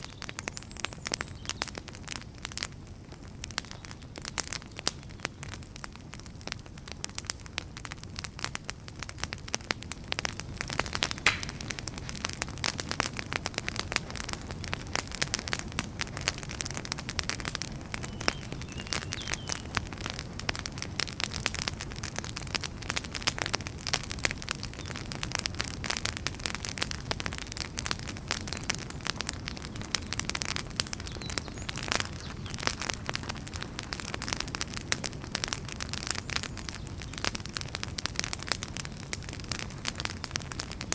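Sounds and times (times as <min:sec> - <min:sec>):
wood fire crackling: 0:00.0 - 0:40.9
low rumble of flame: 0:00.1 - 0:40.9
loud wood snap: 0:10.6 - 0:12.8.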